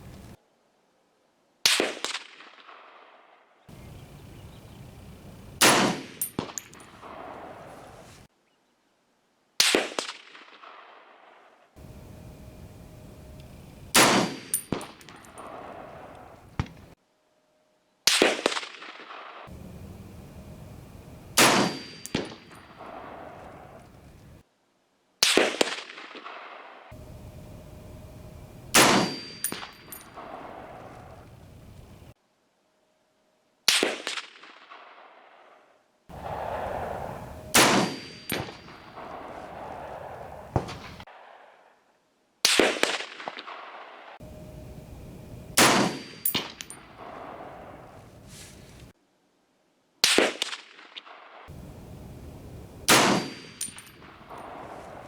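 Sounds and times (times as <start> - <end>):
rifle shots ringing on steel target: 3.7 - 8.2, 11.8 - 17.0, 18.1 - 24.4, 25.2 - 32.1, 36.1 - 41.4, 45.4 - 48.1, 50.0 - 55.0.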